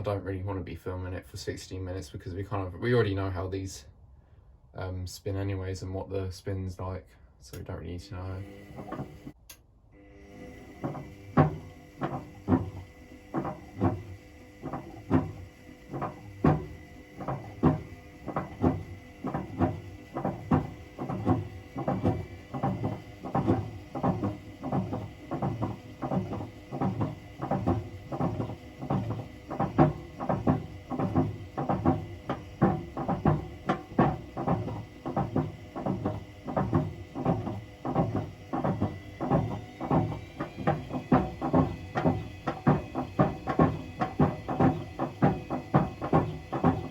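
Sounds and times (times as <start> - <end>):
washing machine drum knocking: 8.4 - 9.3, 10.4 - 46.9.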